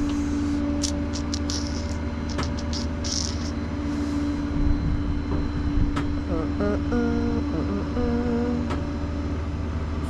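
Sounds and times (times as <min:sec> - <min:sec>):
short clicks: 0:00.8 - 0:03.5.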